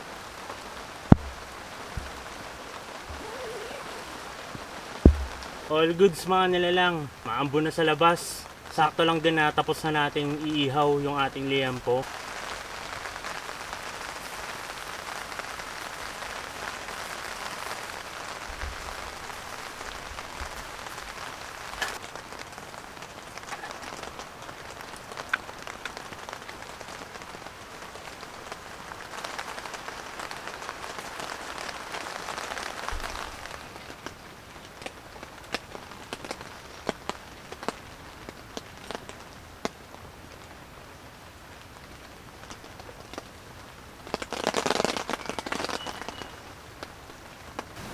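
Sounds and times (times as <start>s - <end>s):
rain falling: 0.0s - 47.9s
water drips and taps: 4.5s - 5.6s.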